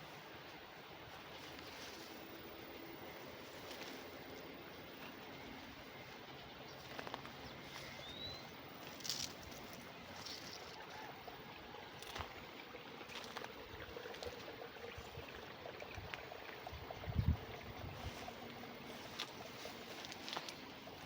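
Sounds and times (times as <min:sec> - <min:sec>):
water flowing in a channel: 0:00.0 - 0:21.0
footsteps crunching on leaves: 0:06.8 - 0:11.0, 0:13.1 - 0:13.5, 0:18.0 - 0:21.0.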